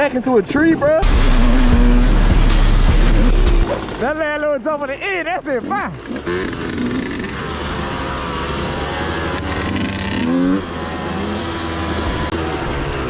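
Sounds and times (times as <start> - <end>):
dirt bike engine revving: 1.0 - 3.6, 6.0 - 13.0.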